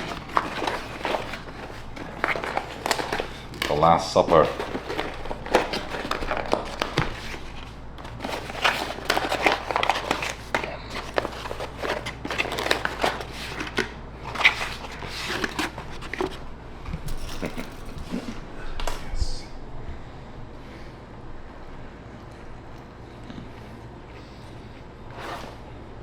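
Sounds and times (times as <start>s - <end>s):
paper wrappers crinkling: 0.0s - 16.5s.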